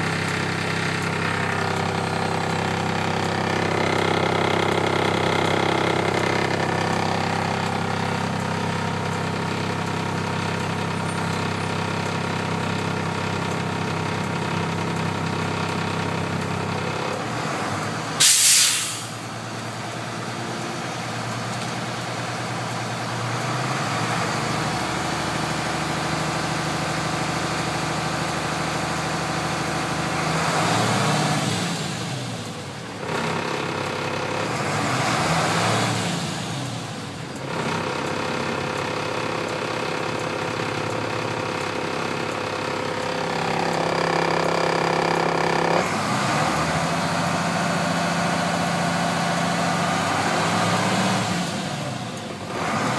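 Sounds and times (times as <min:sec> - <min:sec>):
engine revving: 0:00.0 - 0:12.5, 0:22.6 - 0:32.4, 0:33.0 - 0:36.8, 0:40.4 - 0:52.9
diesel engine idling: 0:00.0 - 0:52.9
air brake hiss: 0:18.2 - 0:19.2.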